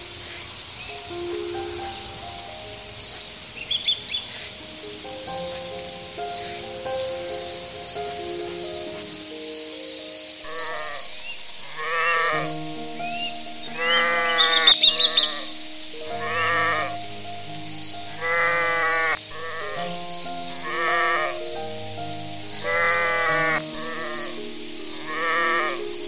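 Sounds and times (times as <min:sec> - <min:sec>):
high chirps: 0:00.0 - 0:26.0
soft background music: 0:00.0 - 0:26.0.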